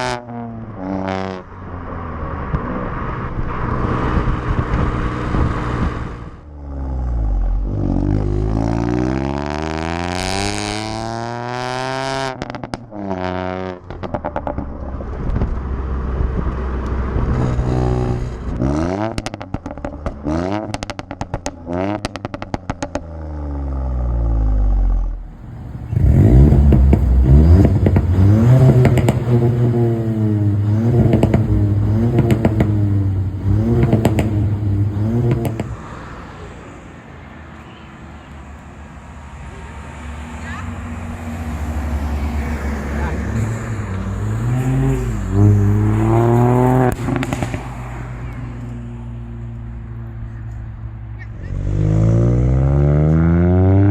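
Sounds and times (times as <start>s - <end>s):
car engine accelerating hard: 0.0s - 37.0s, 38.3s - 53.9s
exhaust crackles and pops: 2.4s - 6.5s, 12.3s - 36.1s, 45.3s - 50.8s.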